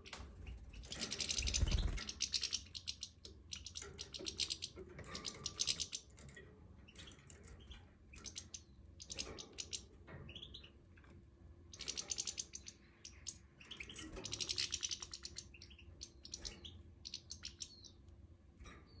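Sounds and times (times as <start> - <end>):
goldfinches twittering: 0.5 - 6.1.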